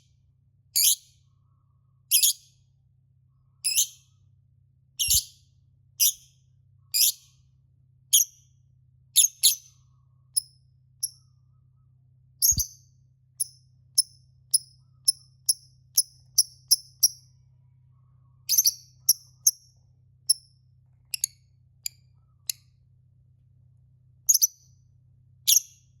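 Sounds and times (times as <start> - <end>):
faint low hum: 0.0 - 26.0
lovebird high-pitched chirps: 0.8 - 1.2, 2.1 - 2.6, 3.6 - 4.2, 5.0 - 5.4, 6.0 - 7.4, 8.1 - 8.5, 9.2 - 11.8, 12.4 - 17.4, 18.4 - 22.7, 24.3 - 24.8, 25.5 - 26.0.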